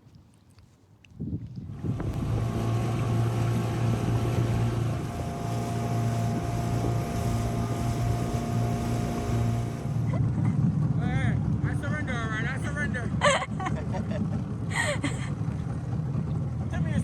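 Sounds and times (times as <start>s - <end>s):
wind noise on microphone: 1.1s - 10.2s
outboard motor running: 1.6s - 11.2s, 13.8s - 17.0s.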